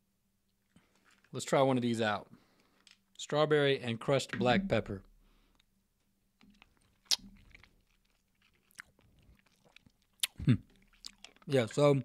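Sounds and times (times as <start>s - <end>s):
wet mouth smacks: 6.4s - 7.7s, 8.7s - 11.4s.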